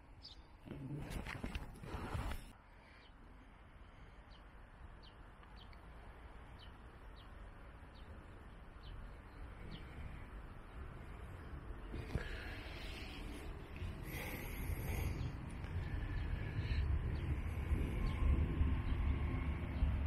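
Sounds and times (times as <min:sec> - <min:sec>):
low outdoor rumble: 0:00.0 - 0:20.0
small bird chirping: 0:00.2 - 0:01.3, 0:04.3 - 0:12.3.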